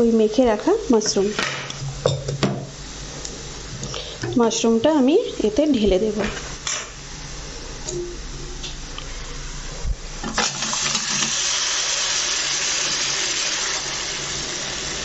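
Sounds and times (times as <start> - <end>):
mushrooms sizzling in hot oil: 10.1 - 15.0.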